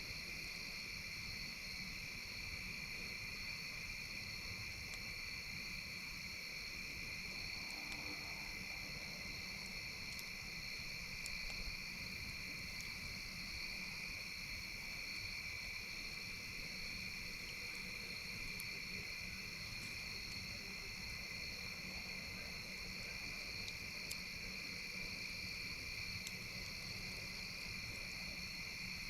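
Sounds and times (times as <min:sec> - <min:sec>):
crickets chirring: 0:00.0 - 0:29.0
campfire popping: 0:09.3 - 0:13.6, 0:16.0 - 0:28.0.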